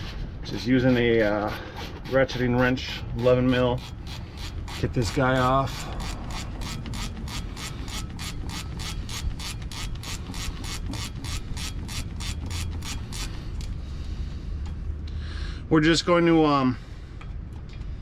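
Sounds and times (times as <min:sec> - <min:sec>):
ratcheting wrench clicking: 0:03.8 - 0:13.7.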